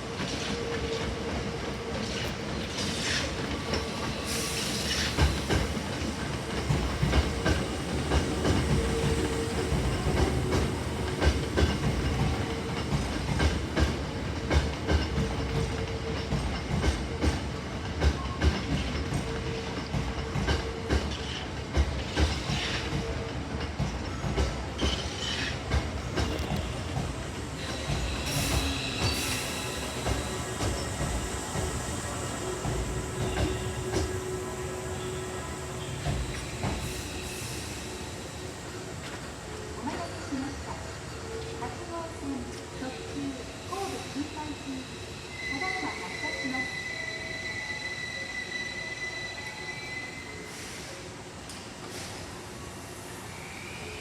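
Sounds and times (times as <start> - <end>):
steady train hum: 0.0 - 54.0
train wheels clacking over rail joints: 2.0 - 34.4.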